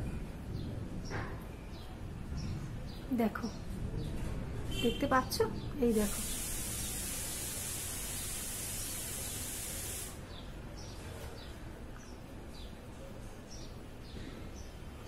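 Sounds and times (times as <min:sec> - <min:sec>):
steady high hiss: 0:05.8 - 0:10.3.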